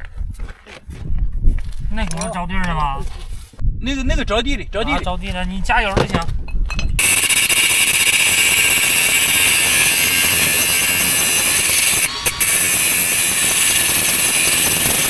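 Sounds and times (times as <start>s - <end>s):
power grinder grinding metal: 7.0s - 15.0s.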